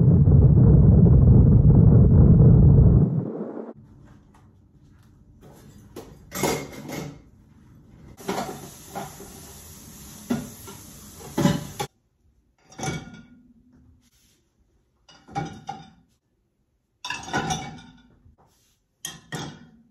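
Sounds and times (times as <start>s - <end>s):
tap water running: 8.2s - 11.9s.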